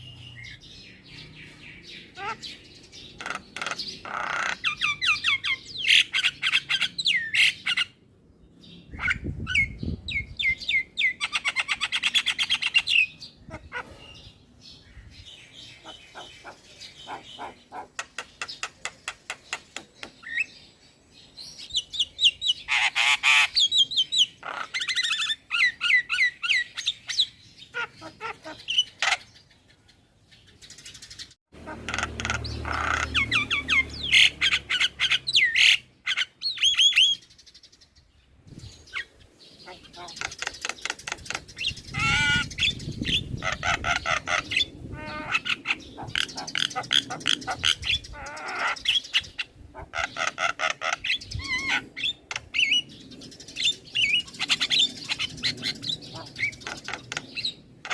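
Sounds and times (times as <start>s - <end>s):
myna singing chirps and clicks: 15.7s - 20.5s, 38.9s - 57.9s.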